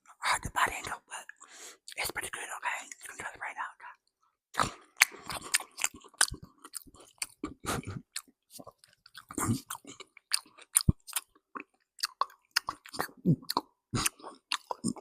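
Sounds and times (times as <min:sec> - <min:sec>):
bread being chewed: 0:04.6 - 0:15.0.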